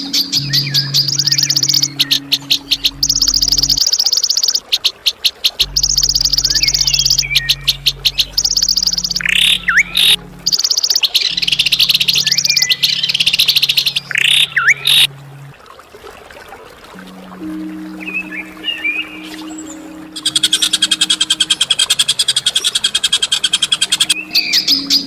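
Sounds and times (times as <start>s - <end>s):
steady low hum: 0.0s - 3.9s, 5.6s - 15.6s
songbirds singing: 0.0s - 15.5s, 17.0s - 25.0s.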